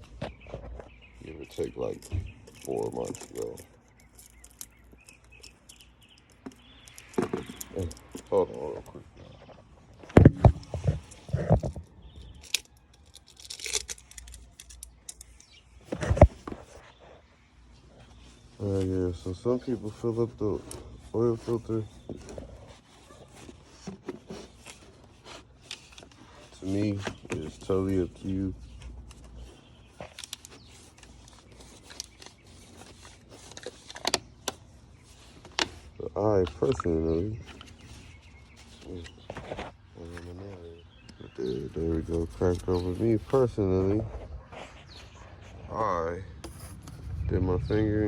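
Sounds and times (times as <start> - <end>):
crinkling rustle: 0.0 - 47.3
handling knocks and thumps: 6.3 - 12.2, 15.9 - 16.8.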